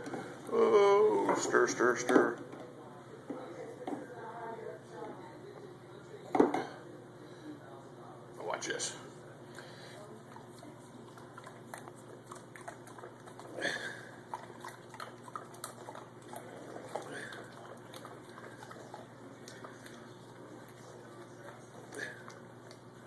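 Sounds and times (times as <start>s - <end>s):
dog lapping and lip-smacking: 10.2s - 23.0s.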